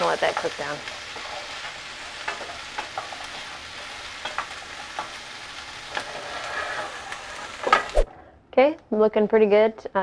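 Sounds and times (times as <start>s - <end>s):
wooden spoon scraping a pan: 0.0s - 8.0s
onion and garlic sizzling in oil: 0.0s - 8.1s.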